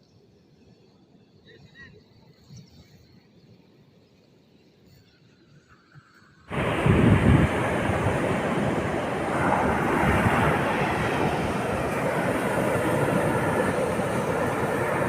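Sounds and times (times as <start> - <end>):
low rumble: 6.5 - 14.9
heavy rain pouring: 6.5 - 15.0.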